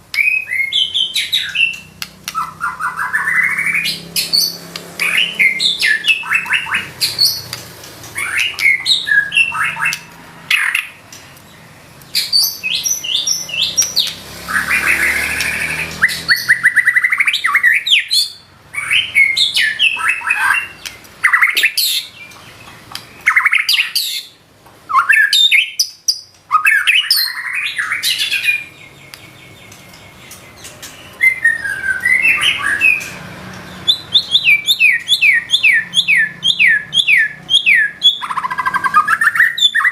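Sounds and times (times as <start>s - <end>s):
bird singing whistled phrases: 0.2s - 7.5s, 8.2s - 10.9s, 12.1s - 22.4s, 23.1s - 29.8s, 31.0s - 39.9s
bird rattling trill: 0.7s - 11.3s.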